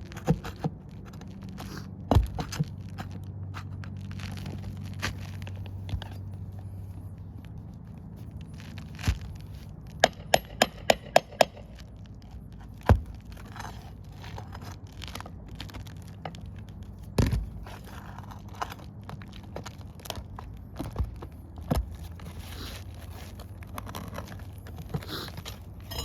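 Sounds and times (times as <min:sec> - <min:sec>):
shingle crackling and scraping: 0:00.0 - 0:26.0
sharp tool taps: 0:10.0 - 0:11.8.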